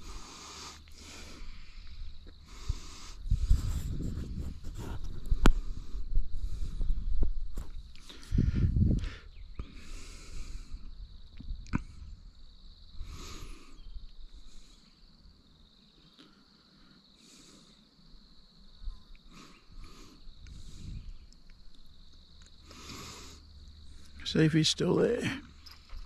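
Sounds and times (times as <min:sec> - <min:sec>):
high-pitched insect drone: 0:05.6 - 0:26.0.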